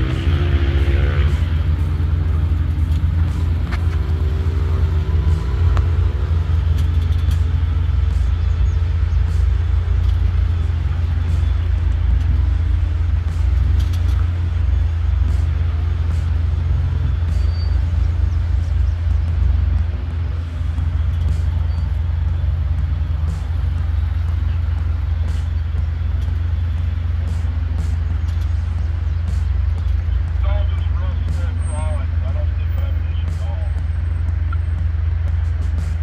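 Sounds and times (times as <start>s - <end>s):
engine rumbling at low speed: 0.0s - 36.0s.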